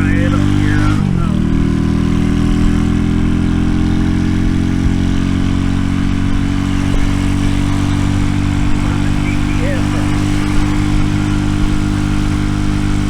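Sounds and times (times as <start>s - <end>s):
minibike engine idling: 0.0s - 13.0s.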